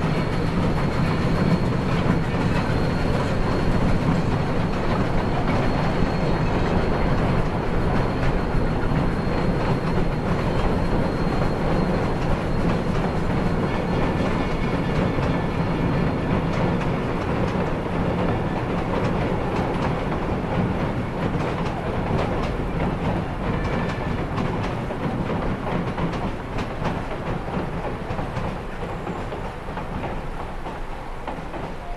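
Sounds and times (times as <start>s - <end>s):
train cars rumbling over bridge: 0.0s - 31.9s
wheels clacking over rail joints: 0.0s - 31.9s.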